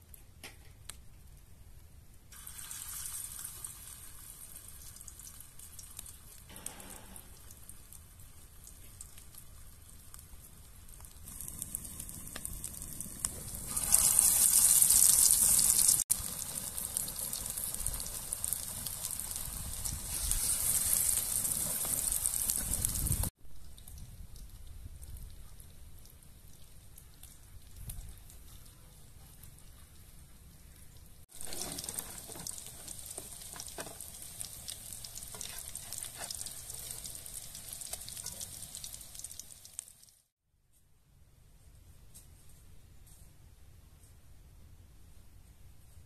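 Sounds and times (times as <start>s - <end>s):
patties sizzling in hot oil: 2.3s - 23.3s, 31.2s - 40.3s.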